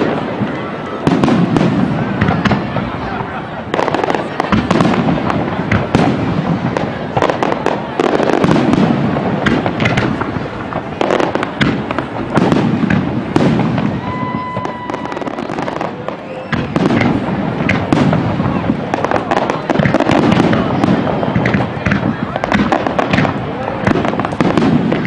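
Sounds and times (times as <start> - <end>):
firework bursts and crackling: 0.0 - 25.0
firework whistle: 13.3 - 22.5.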